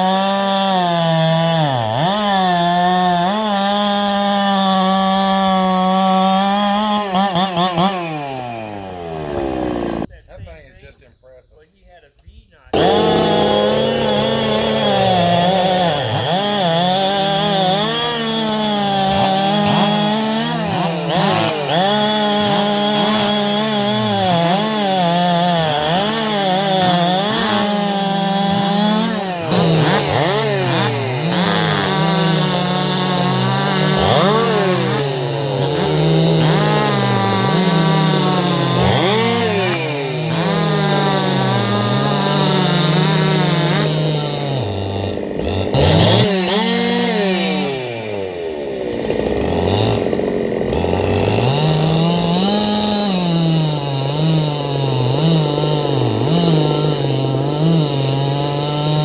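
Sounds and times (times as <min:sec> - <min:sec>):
chainsaw cutting wood: 0:00.0 - 0:10.1, 0:12.7 - 0:59.0.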